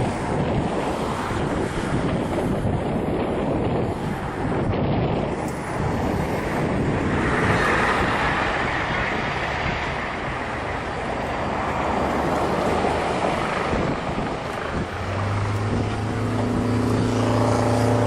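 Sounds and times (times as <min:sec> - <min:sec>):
aircraft engine noise: 0:00.0 - 0:18.0
wind on microphone: 0:00.0 - 0:18.0.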